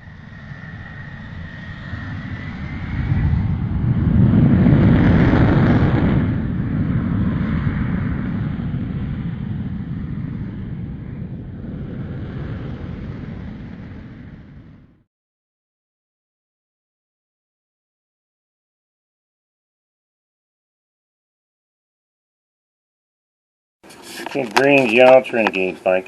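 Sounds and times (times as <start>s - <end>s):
low rumbling roar: 1.0s - 15.0s.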